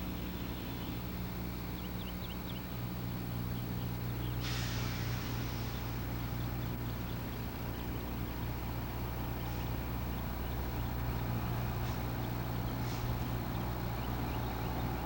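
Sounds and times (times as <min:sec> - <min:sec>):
bus engine idling: 0:00.0 - 0:15.0
hiss: 0:04.4 - 0:06.1, 0:12.8 - 0:13.2.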